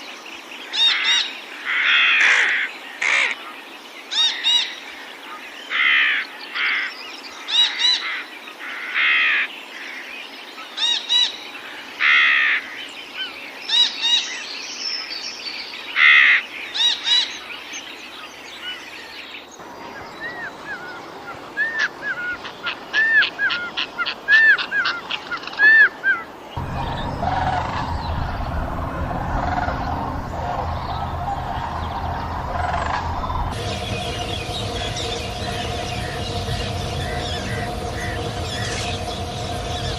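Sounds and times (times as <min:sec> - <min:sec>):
birds harsh raspy calls: 0:00.8 - 0:03.5
bird ringing notes: 0:26.6 - 0:39.9.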